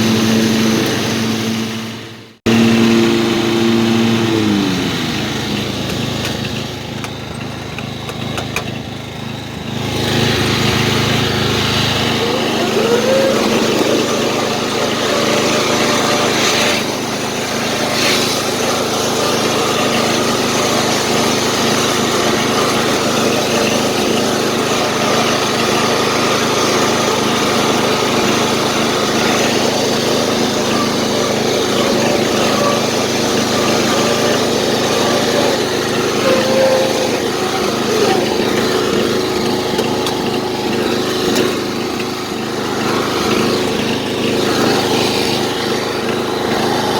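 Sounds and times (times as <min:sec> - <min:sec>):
lawnmower engine running: 0:00.0 - 0:46.9.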